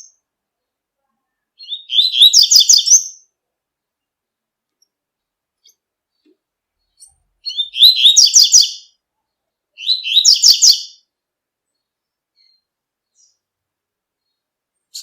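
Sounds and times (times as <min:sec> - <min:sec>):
bird singing rapid high notes: 0:07.0 - 0:08.9, 0:09.8 - 0:11.0.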